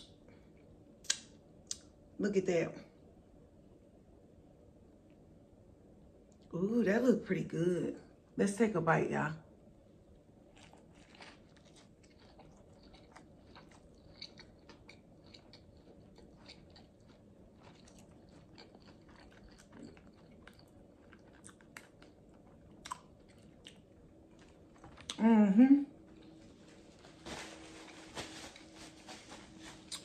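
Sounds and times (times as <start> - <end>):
crunchy chewing: 10.2 - 25.2, 29.6 - 30.0.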